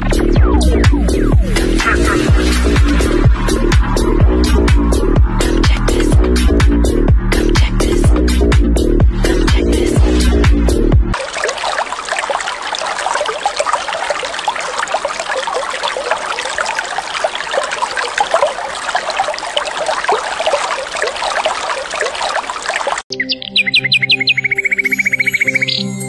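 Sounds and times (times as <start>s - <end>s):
water trickling and bubbling: 0.0s - 10.5s, 11.1s - 23.1s
music: 0.0s - 11.2s, 23.1s - 26.0s
bird chirps: 23.1s - 26.0s.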